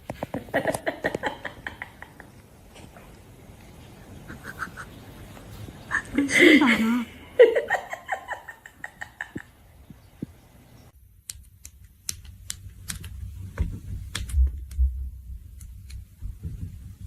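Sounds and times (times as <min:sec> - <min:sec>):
sharp clicks: 0:11.2 - 0:13.3
low thumps and rumbling: 0:13.2 - 0:17.0.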